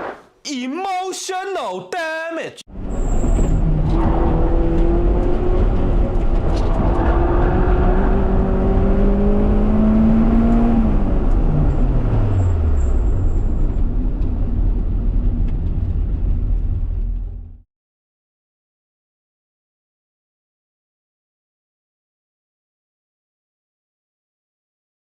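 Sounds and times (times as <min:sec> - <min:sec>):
car engine revving under load: 0:02.7 - 0:13.2.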